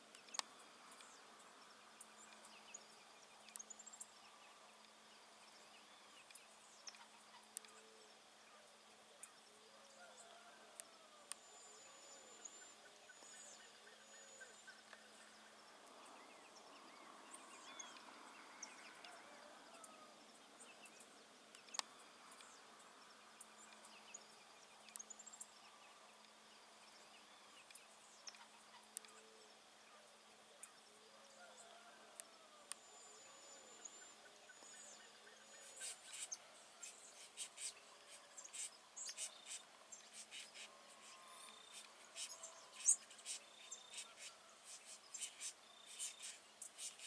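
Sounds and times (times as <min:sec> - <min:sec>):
high thin bird chirps: 0:41.7 - 0:47.0.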